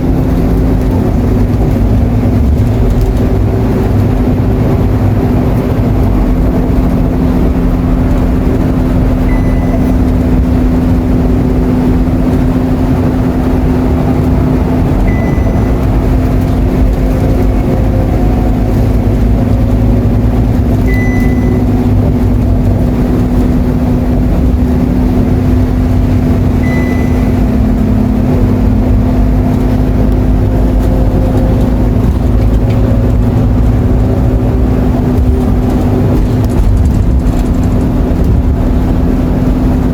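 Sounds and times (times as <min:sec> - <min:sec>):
bus engine drone: 0:00.0 - 0:39.9
brief high beep: 0:09.2 - 0:10.2, 0:15.0 - 0:16.0, 0:20.8 - 0:21.8, 0:26.6 - 0:27.6.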